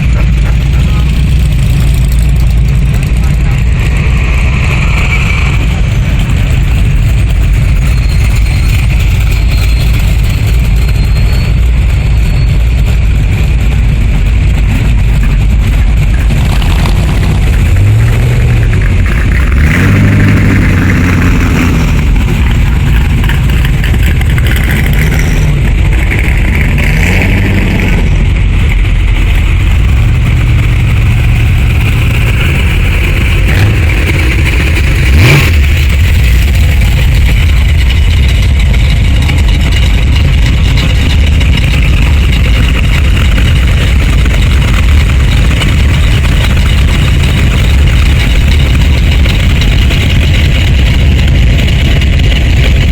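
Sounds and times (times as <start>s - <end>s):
car engines revving: 0.0s - 52.9s.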